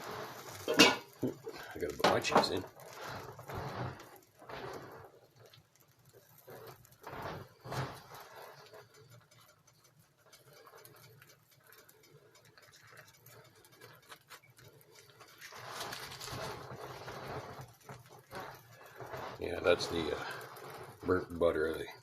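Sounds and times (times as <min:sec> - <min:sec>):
butter sizzling in a frying pan: 0:00.0 - 0:22.0.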